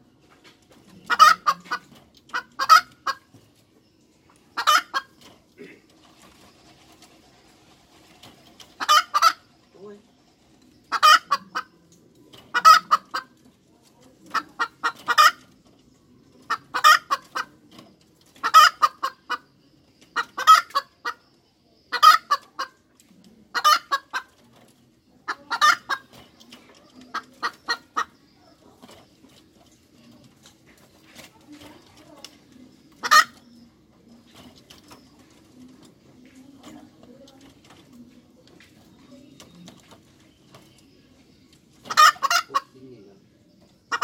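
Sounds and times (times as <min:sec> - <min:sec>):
hen cackling: 0:01.0 - 0:03.3, 0:04.5 - 0:05.8, 0:08.8 - 0:09.5, 0:10.8 - 0:11.8, 0:12.5 - 0:13.4, 0:16.4 - 0:17.6, 0:18.4 - 0:19.5, 0:20.1 - 0:21.2, 0:21.9 - 0:22.8, 0:23.5 - 0:24.3, 0:25.2 - 0:26.1, 0:32.9 - 0:33.6, 0:41.9 - 0:42.8.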